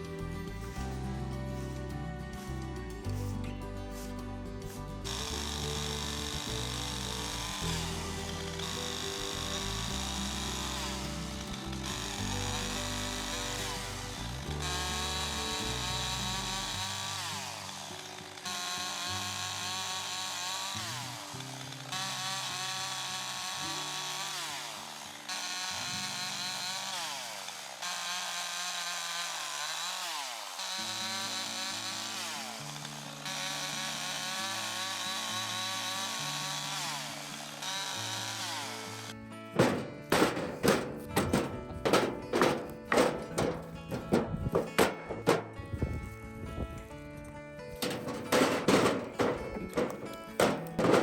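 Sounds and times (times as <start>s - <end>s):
background music with bass: 0.0s - 16.9s, 39.4s - 51.0s
chainsaw cutting wood: 0.0s - 51.0s.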